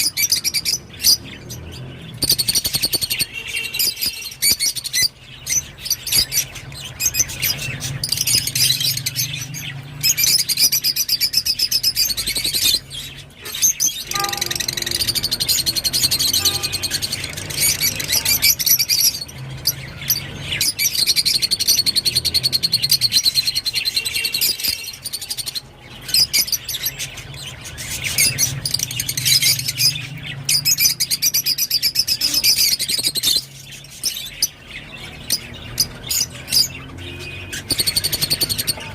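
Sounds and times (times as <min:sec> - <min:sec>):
lovebird chirps and twitters: 0:00.0 - 0:38.9.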